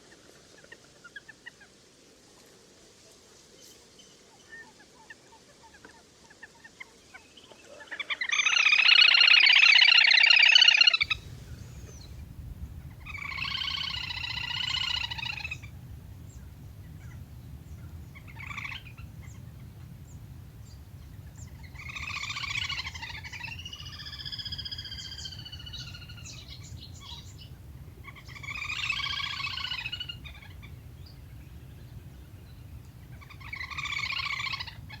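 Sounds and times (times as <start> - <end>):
grebe trilling calls: 8.2 - 35.0
steady low hum: 11.0 - 35.0.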